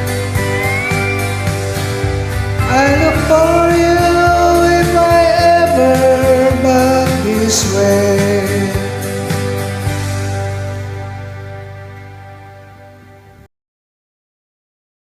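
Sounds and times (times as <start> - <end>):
guitar karaoke backing track: 0.0 - 13.4
person singing: 0.4 - 9.2.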